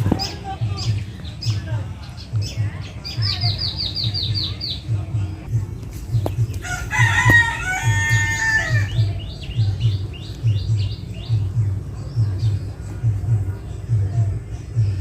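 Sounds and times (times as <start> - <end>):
low rhythmic throbbing: 0.0 - 15.0
rooster crowing: 6.6 - 9.0.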